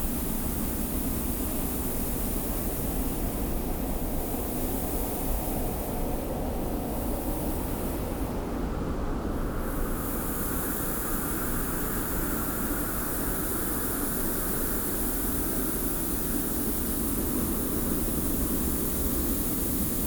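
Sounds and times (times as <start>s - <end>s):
blowing sand hiss: 9.6s - 20.0s.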